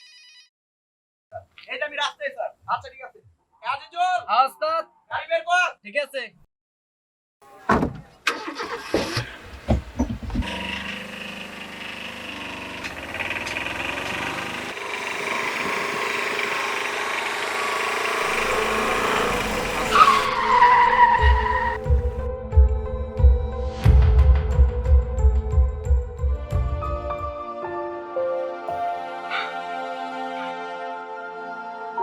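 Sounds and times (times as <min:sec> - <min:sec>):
truck engine running: 0:08.3 - 0:22.3
knocks and clicks: 0:09.0 - 0:10.6.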